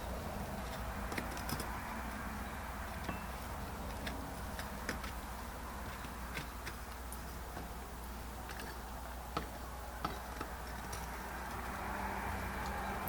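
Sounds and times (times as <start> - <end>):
low steady hum: 0.0 - 13.0
screwdriver clicking and scraping metal: 0.6 - 1.8, 3.8 - 7.7, 8.4 - 11.8.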